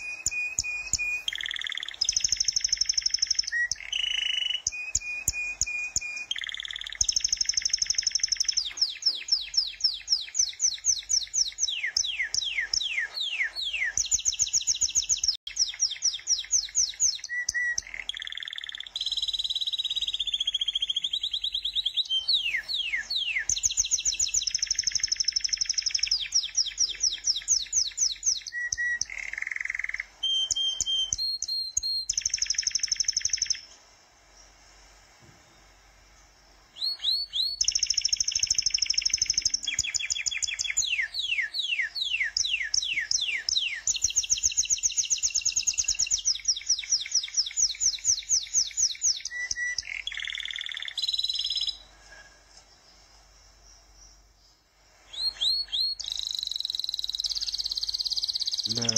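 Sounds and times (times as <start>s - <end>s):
bird chirps and trills: 0.0s - 33.8s, 35.4s - 58.9s.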